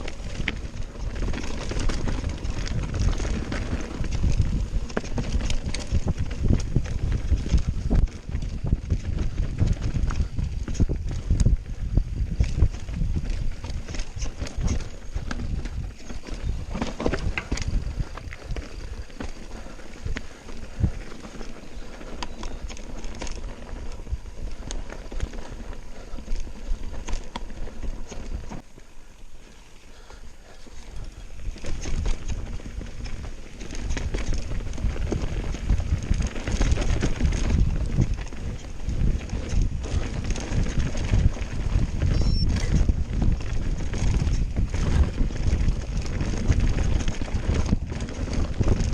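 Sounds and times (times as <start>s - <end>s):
bike clattering over stones: 0.0s - 11.6s, 12.3s - 28.6s.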